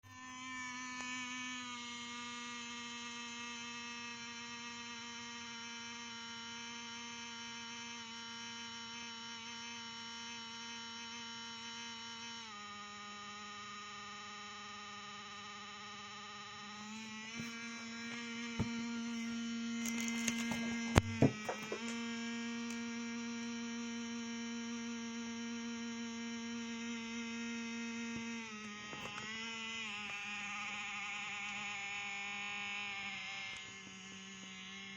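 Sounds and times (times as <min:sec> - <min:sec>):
laptop humming whine: 0:00.0 - 0:34.9
sharp clicks and knocks: 0:19.9 - 0:22.0.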